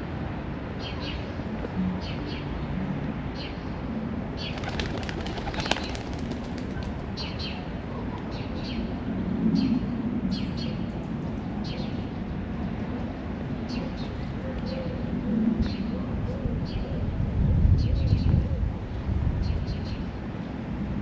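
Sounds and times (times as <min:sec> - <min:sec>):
birds chirping: 0:04.4 - 0:08.8.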